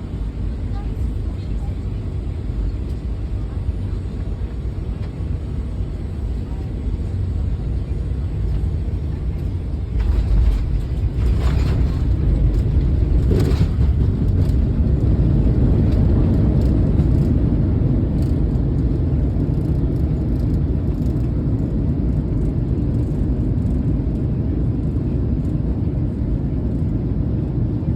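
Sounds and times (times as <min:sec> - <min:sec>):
vehicle rumbling: 0:00.0 - 0:27.8.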